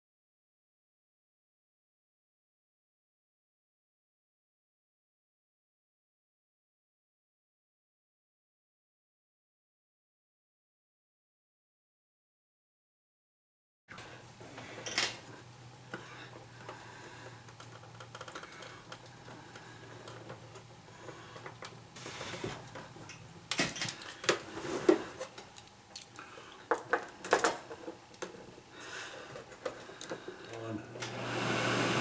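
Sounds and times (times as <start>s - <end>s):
plastic parts clicking and clattering: 17.4s - 20.7s, 22.6s - 28.4s.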